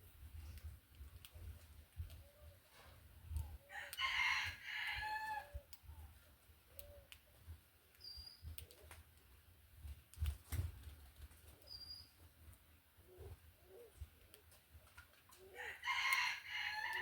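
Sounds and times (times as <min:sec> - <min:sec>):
rooster crowing: 0:03.7 - 0:05.6, 0:15.6 - 0:17.0
high bird chirps: 0:08.0 - 0:08.5, 0:11.7 - 0:12.2
wings fluttering: 0:08.2 - 0:12.6, 0:13.2 - 0:17.0.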